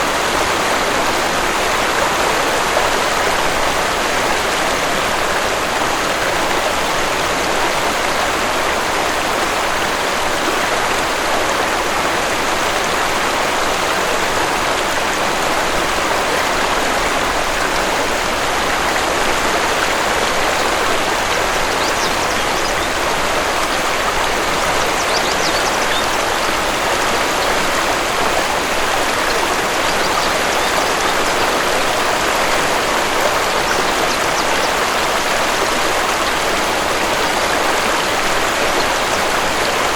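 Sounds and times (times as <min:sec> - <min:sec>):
waterfall rushing: 0:00.0 - 0:39.9
faint bird chirps: 0:25.0 - 0:26.0.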